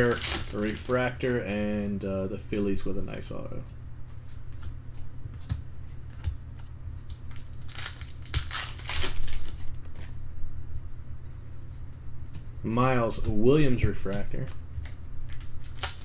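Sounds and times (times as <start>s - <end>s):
foil wrapper crinkling and tearing: 0.0s - 1.4s, 7.0s - 10.2s, 14.3s - 16.0s
steady low hum: 0.0s - 16.0s.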